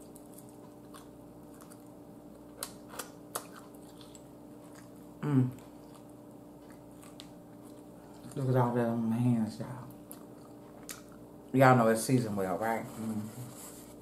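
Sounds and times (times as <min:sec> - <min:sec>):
person chewing food: 0:00.0 - 0:08.8, 0:09.7 - 0:11.5
woman humming: 0:05.2 - 0:05.6.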